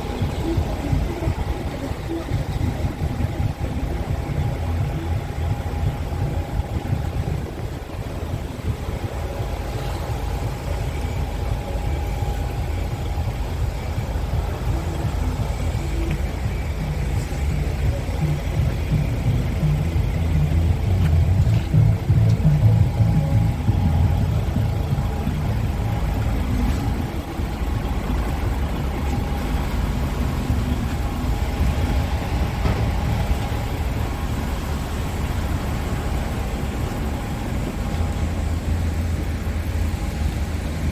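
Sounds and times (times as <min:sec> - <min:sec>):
faint steady whine: 0:00.0 - 0:40.9
truck diesel engine idling: 0:00.0 - 0:40.9.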